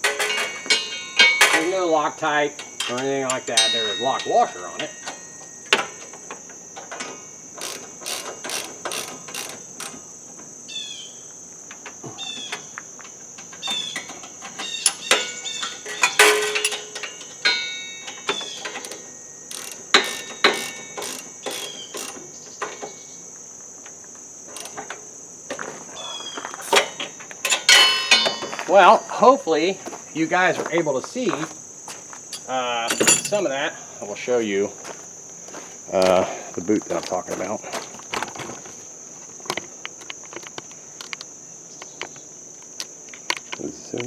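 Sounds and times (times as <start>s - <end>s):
metal tool clinks: 0.0s - 6.2s, 14.6s - 22.2s, 26.6s - 30.7s, 31.3s - 33.5s
ratchet wrench clicking: 7.0s - 10.1s, 18.3s - 22.2s, 24.5s - 24.9s.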